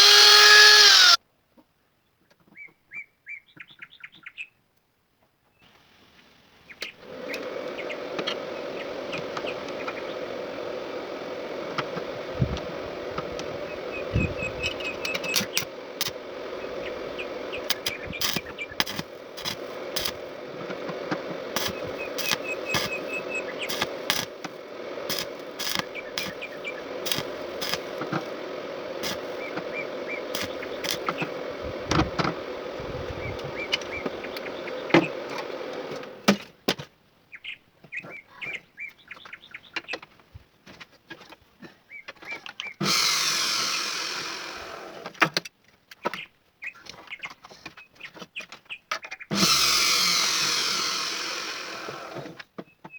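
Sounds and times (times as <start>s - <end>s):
wood lathe humming: 0.0s - 1.2s, 7.0s - 36.1s, 42.8s - 45.1s, 49.3s - 52.4s
birds chirping: 6.6s - 35.9s, 37.3s - 40.1s.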